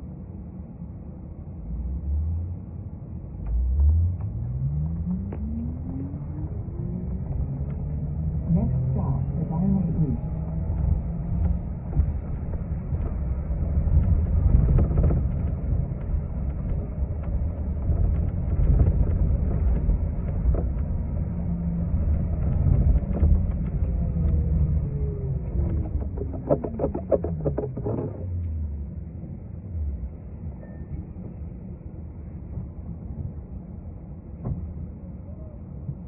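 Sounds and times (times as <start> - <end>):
bus engine and road rumble: 0.0 - 36.0.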